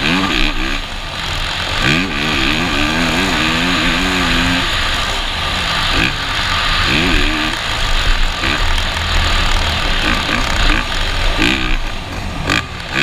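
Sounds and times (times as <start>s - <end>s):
motocross bike engine revving: 0.0s - 13.0s
steady rushing noise: 0.0s - 13.0s.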